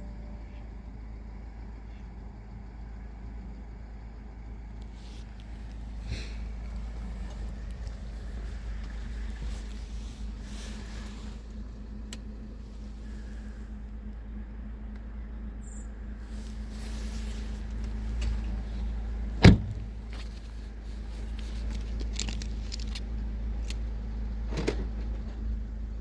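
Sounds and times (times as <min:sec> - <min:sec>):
steady low hum: 0:00.0 - 0:24.5
sharp loud thump: 0:19.4 - 0:19.9.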